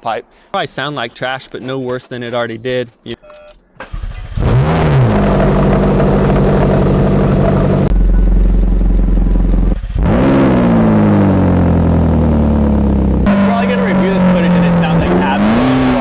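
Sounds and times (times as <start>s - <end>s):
car engine idling and revving: 3.8s - 16.0s.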